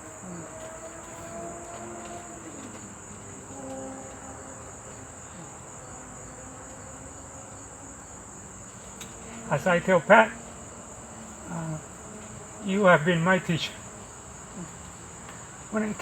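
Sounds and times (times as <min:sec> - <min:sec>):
faint voices murmuring: 0:11.2 - 0:16.0.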